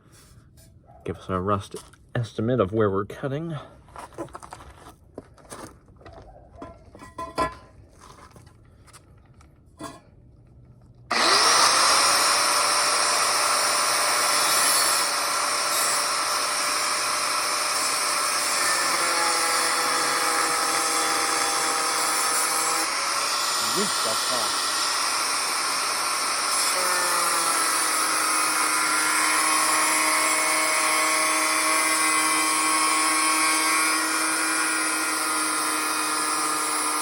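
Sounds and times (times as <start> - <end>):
power tool cutting metal pipe: 11.1 - 37.0.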